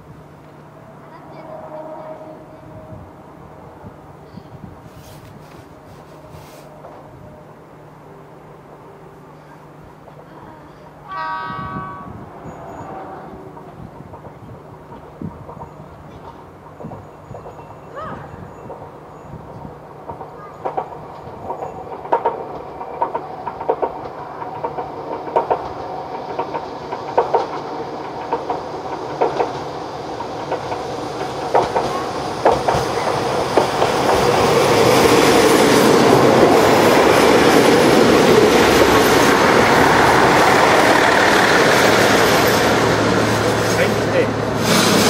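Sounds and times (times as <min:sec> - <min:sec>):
railcar rushing past: 0:00.0 - 0:45.0
train wheels clacking over rail joints: 0:18.6 - 0:45.0.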